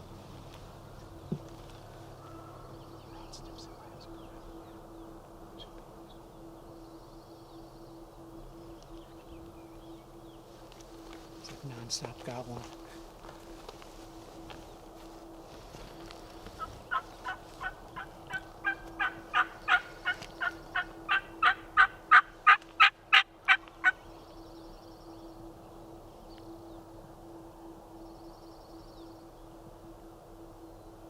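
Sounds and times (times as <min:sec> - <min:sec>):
turkey yelps: 0:16.9 - 0:24.0.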